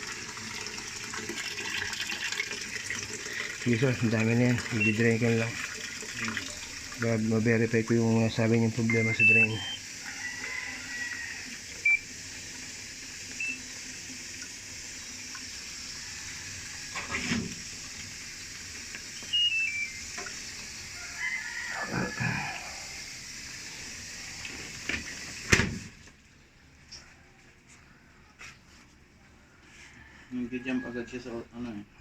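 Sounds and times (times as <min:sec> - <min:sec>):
washing machine draining water: 0:00.0 - 0:26.6
short electronic beeps: 0:04.7 - 0:05.2, 0:08.8 - 0:09.8, 0:13.4 - 0:13.6, 0:19.2 - 0:20.0
rooster crowing: 0:10.0 - 0:11.7, 0:15.8 - 0:17.2, 0:20.9 - 0:23.1, 0:29.5 - 0:31.5.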